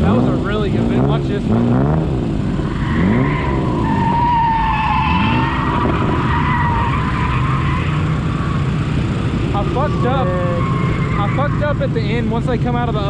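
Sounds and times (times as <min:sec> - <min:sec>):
car engine revving: 0:00.0 - 0:13.0
tyres squealing: 0:02.5 - 0:12.1.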